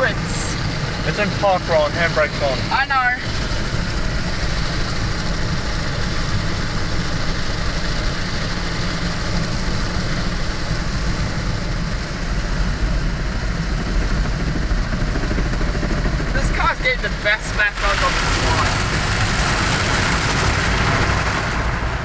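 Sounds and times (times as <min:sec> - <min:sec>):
low rumble: 0:00.0 - 0:22.0
water rushing: 0:16.4 - 0:21.8.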